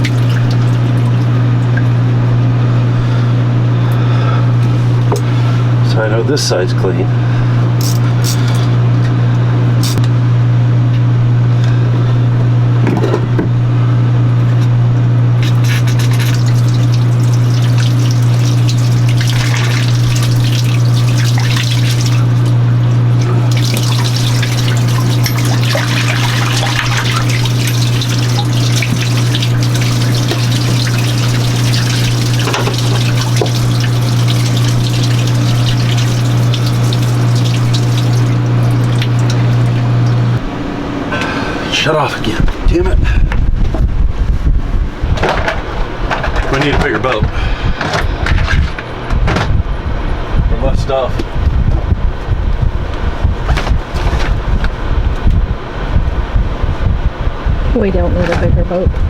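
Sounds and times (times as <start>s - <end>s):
water trickling and splashing: 0.0s - 2.5s, 15.4s - 40.4s
pump humming: 0.0s - 10.0s, 14.3s - 42.0s.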